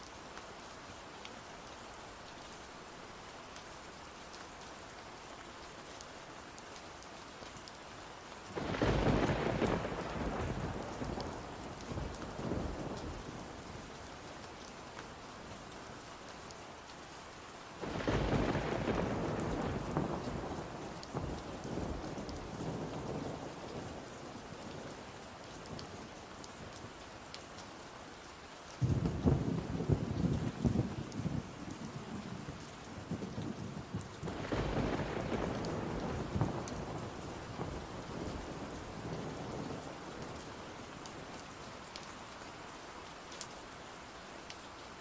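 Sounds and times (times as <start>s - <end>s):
steady rain: 0.0s - 45.0s
thunder rumbling: 8.6s - 13.2s, 17.8s - 23.5s, 33.0s - 39.9s.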